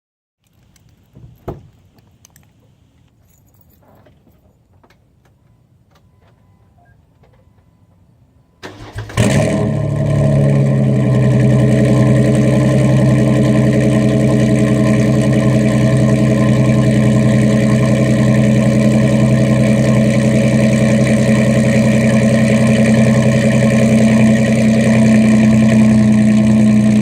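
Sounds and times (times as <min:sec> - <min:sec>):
engine cranking: 0:08.6 - 0:09.7
car engine idling: 0:08.6 - 0:27.0.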